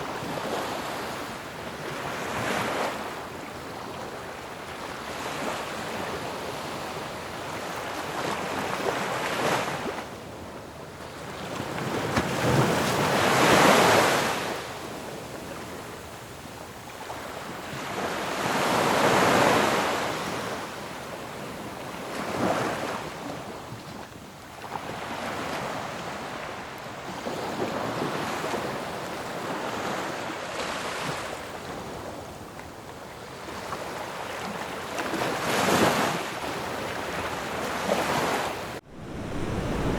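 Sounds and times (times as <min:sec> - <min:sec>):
sea waves breaking on shore: 0:33.3 - 0:39.9.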